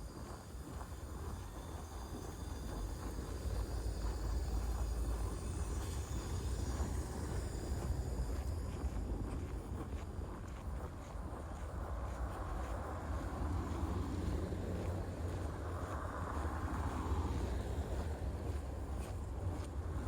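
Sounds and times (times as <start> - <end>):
traffic rumble: 11.7 - 20.0.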